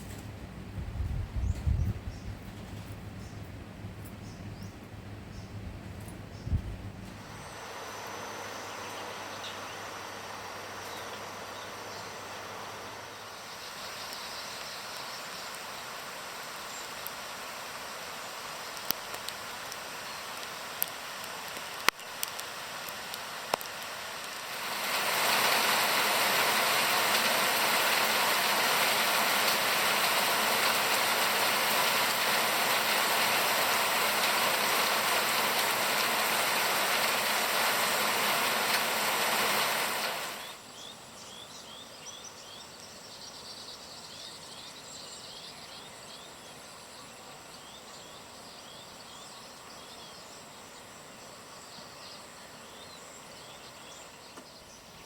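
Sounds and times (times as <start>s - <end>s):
faint hiss: 6.0s - 55.0s
insect chirps: 10.8s - 35.2s
heavy rain pouring: 12.2s - 40.6s.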